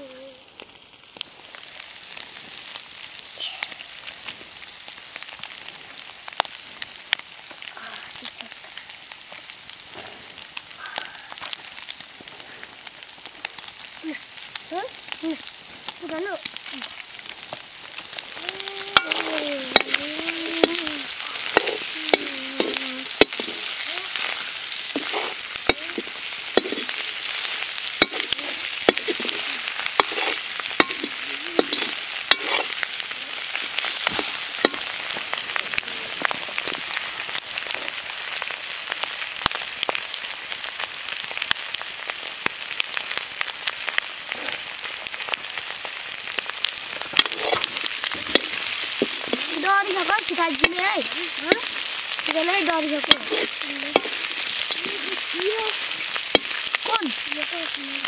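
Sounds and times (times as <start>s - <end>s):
curry sizzling in a pan: 0.0s - 58.0s
spoon clinking and scraping pan: 24.9s - 27.0s, 28.0s - 32.8s, 47.2s - 49.4s, 53.0s - 54.9s.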